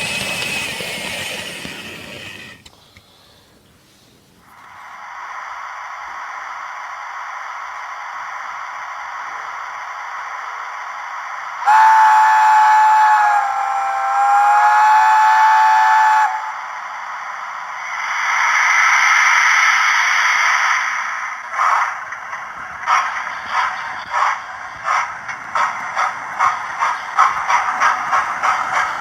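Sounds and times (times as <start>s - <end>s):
steam whistle: 0.0s - 2.6s, 11.6s - 16.8s
steam hiss: 0.0s - 29.0s.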